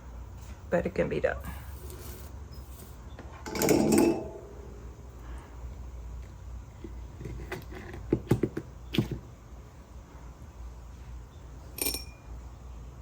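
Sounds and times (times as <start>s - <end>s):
steady low hum: 0.0s - 13.0s
short ringing clink: 11.7s - 12.3s.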